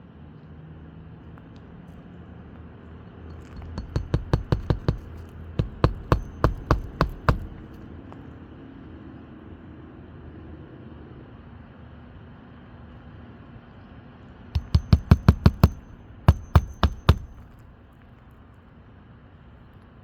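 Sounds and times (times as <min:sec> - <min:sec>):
hammer driving nails into shingles: 0:03.3 - 0:08.1, 0:14.6 - 0:17.8.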